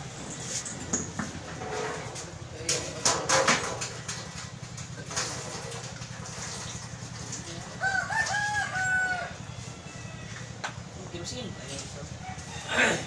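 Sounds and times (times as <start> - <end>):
rooster crowing: 7.7 - 10.8, 12.2 - 13.0.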